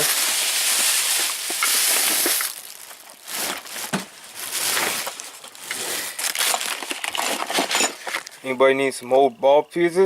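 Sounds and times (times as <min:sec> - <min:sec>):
rummaging through small items: 0:00.0 - 0:08.5
knocks and clinks: 0:06.4 - 0:08.3.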